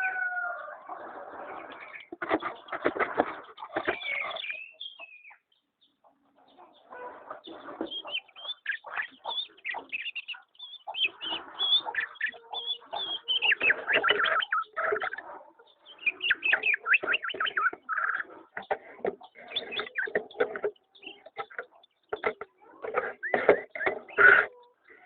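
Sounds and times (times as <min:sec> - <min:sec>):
birds chirping and twittering: 0:00.0 - 0:25.0.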